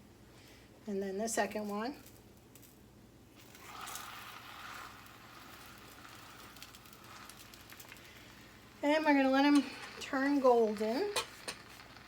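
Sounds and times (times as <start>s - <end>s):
food sizzling in a pan: 3.4s - 12.0s.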